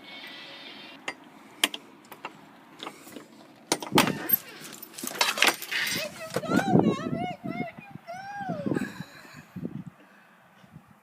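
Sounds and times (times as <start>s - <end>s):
clattering and rustling: 1.6s - 6.7s.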